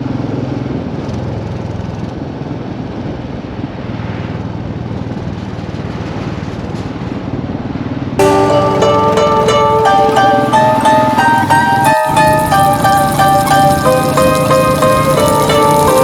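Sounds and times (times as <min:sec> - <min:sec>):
motorcycle engine running: 0:08.2 - 0:16.0
wind and road noise: 0:10.7 - 0:16.0.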